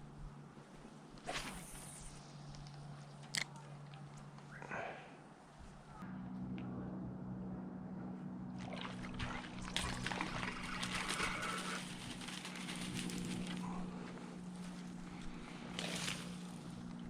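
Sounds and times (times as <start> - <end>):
steady low hum: 0.0 - 17.0
water splashing and sloshing: 8.5 - 13.4.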